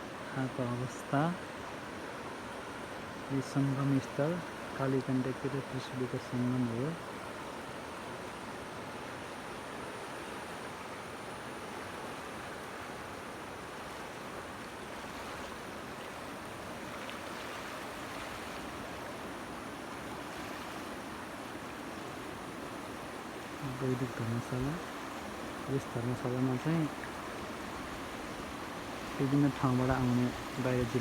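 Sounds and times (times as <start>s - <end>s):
river rushing: 0.0s - 31.0s.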